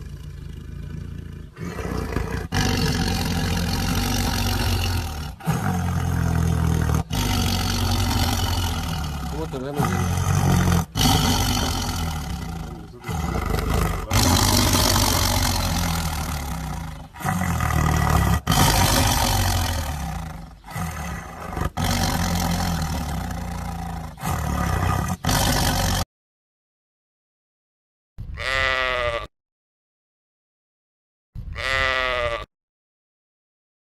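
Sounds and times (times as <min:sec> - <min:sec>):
tiger growling and roaring: 0:00.0 - 0:26.1
sheep bleat: 0:28.3 - 0:29.3, 0:31.5 - 0:32.5.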